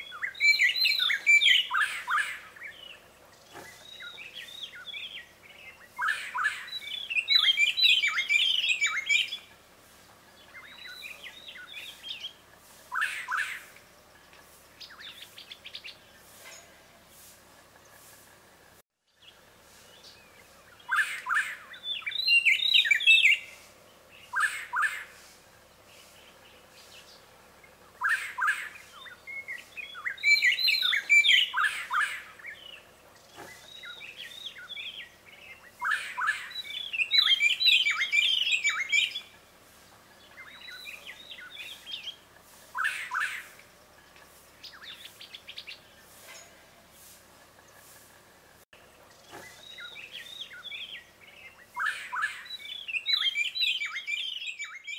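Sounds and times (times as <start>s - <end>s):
birds chattering and whistling: 0.0s - 18.4s, 19.2s - 54.9s.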